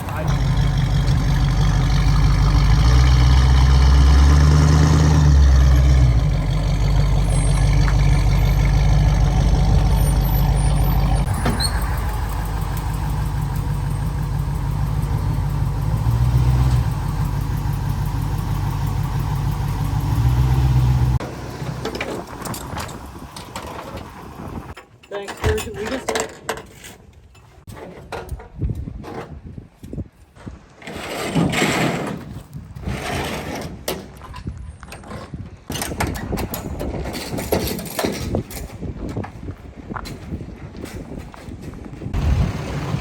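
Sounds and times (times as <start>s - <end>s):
vehicle engine running: 0.0s - 24.8s, 42.2s - 43.0s.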